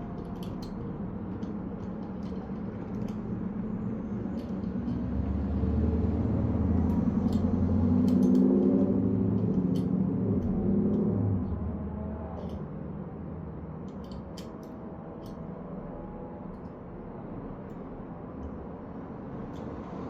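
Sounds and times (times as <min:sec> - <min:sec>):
vehicle engine rumbling: 0:00.0 - 0:20.0
light scattered clicks: 0:06.8 - 0:11.1, 0:13.9 - 0:15.4.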